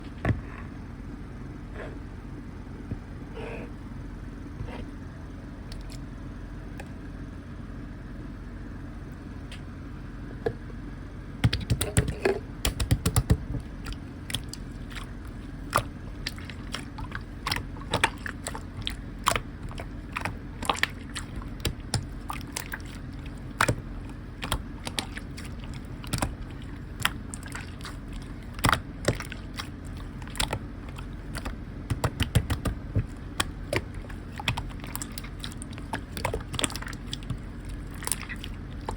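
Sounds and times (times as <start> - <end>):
low background hum: 0.0 - 38.9
slime clicking and popping: 17.4 - 38.9.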